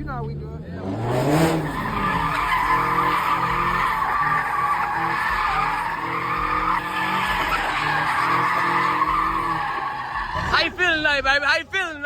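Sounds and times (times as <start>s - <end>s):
car engine revving: 0.0s - 11.4s
tire squeal: 1.1s - 11.1s.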